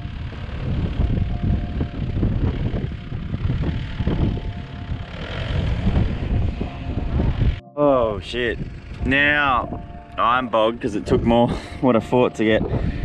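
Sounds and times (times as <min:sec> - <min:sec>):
engine revving under heavy load: 0:00.0 - 0:07.6, 0:08.2 - 0:10.1.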